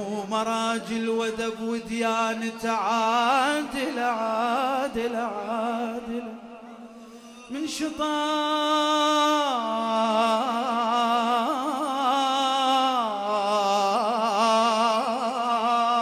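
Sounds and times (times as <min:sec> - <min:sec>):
man singing a religious chant: 0:00.0 - 0:16.0.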